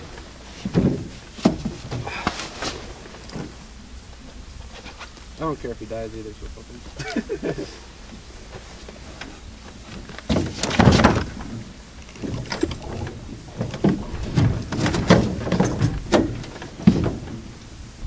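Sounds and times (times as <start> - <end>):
knocks and thumps in fishing boat: 0.0 - 3.6, 8.1 - 17.8.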